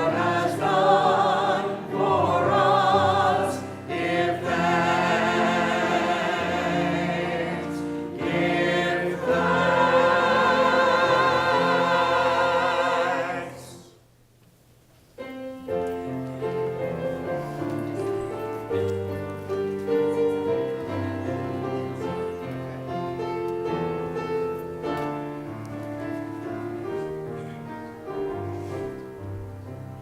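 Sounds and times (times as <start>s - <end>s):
congregation and choir singing hymn: 0.0s - 14.0s.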